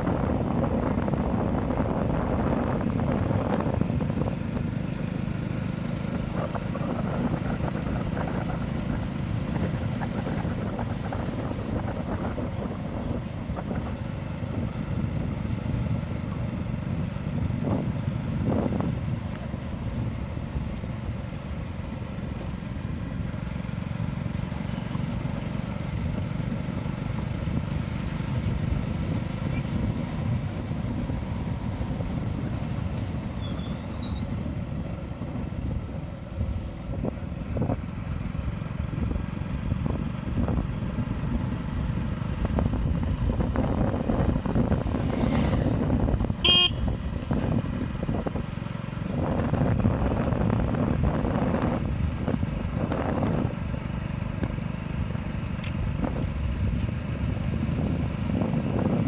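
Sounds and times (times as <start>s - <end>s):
road traffic rumble: 0.0s - 59.0s
vehicle horn toot: 46.4s - 47.0s.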